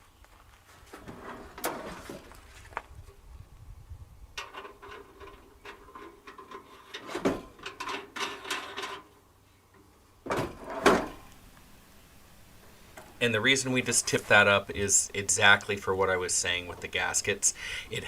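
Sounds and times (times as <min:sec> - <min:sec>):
clicks rattles and scrapes: 0:04.4 - 0:09.2, 0:10.3 - 0:11.3.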